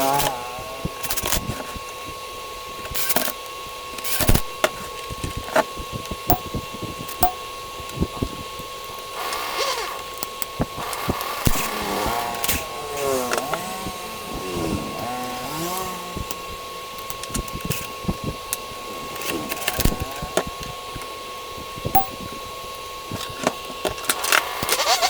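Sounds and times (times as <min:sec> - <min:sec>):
sharp clicks and knocks of parts: 0:22.0 - 0:22.3.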